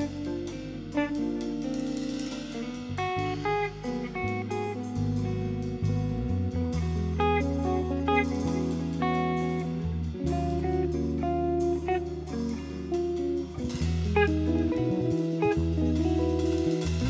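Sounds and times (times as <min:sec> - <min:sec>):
guitar picking melodic lines: 0:00.0 - 0:17.0
sustained bass notes: 0:00.0 - 0:17.0.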